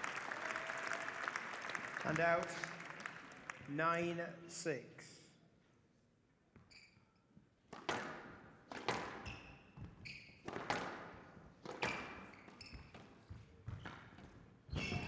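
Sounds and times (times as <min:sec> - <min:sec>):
shoes squeaking on court floor: 0:06.6 - 0:07.3, 0:08.8 - 0:15.0
squash ball hitting rackets and walls: 0:07.7 - 0:15.0.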